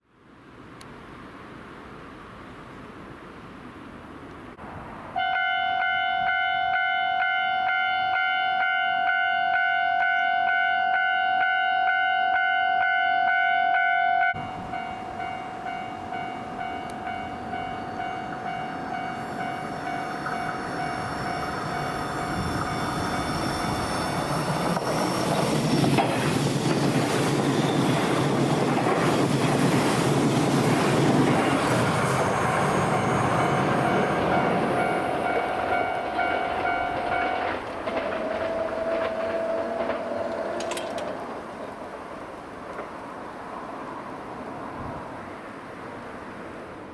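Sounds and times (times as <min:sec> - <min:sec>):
level crossing alarm bell: 0:13.8 - 0:24.6
train wheels clattering over rail joints: 0:15.3 - 0:43.1.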